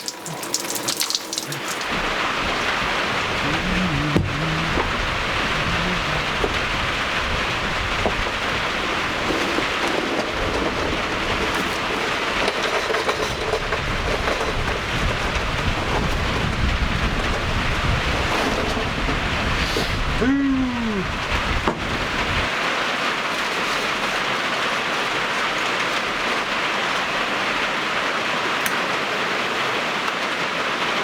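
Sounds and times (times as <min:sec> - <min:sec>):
shower water spraying: 0:00.0 - 0:15.0.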